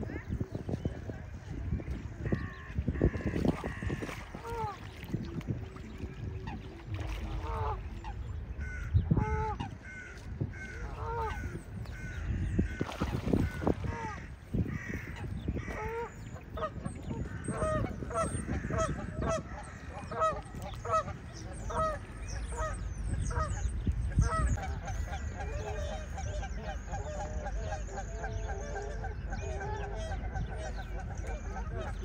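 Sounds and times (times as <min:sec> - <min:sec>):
geese honking: 0:06.4 - 0:23.6.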